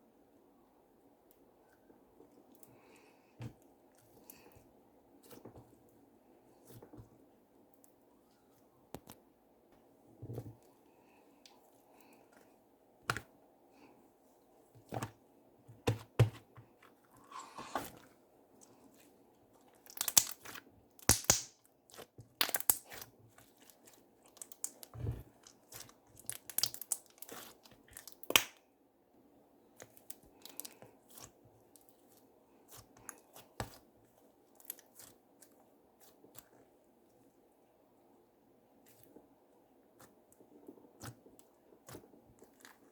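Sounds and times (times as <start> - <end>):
slime crackling and popping: 19.8 - 28.6.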